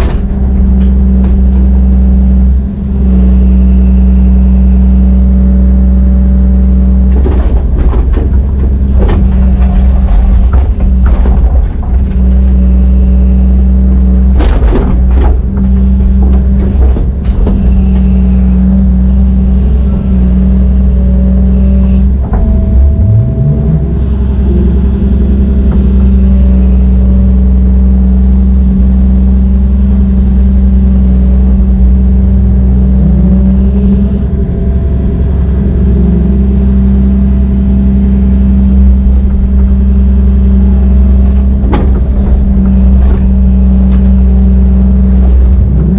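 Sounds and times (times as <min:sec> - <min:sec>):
heavy diesel machinery droning: 0:00.0 - 0:45.9
knocks: 0:07.2 - 0:12.4, 0:41.2 - 0:44.2.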